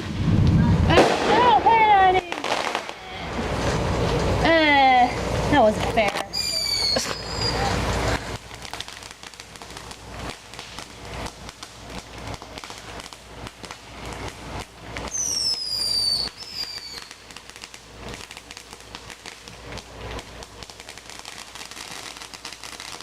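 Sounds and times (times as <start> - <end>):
fireworks popping and crackling: 0.0 - 23.0
whistling firework: 6.3 - 23.0.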